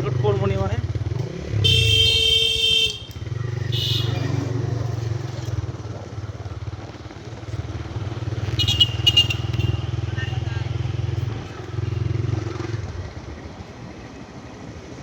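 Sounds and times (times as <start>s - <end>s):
motorcycle engine running: 0.0s - 13.9s
loud horn-like tone: 1.6s - 4.5s.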